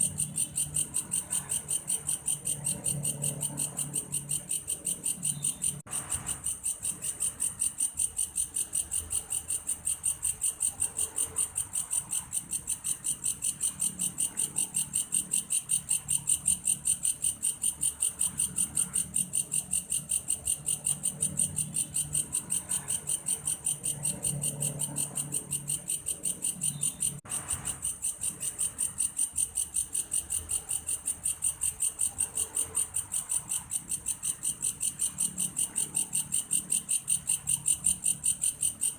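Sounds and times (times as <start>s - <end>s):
grasshopper pulsed chirping: 0.0s - 38.9s.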